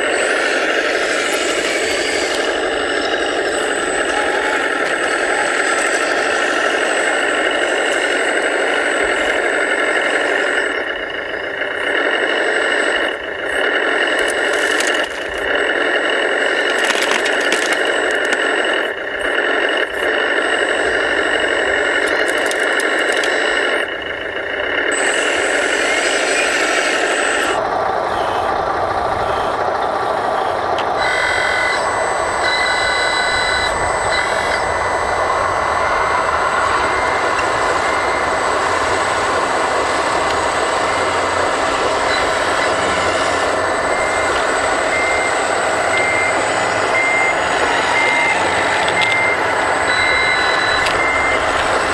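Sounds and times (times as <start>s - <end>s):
reversing beeper: 0.0s - 13.2s, 31.0s - 51.9s
mechanical whine and rattle: 0.0s - 51.9s.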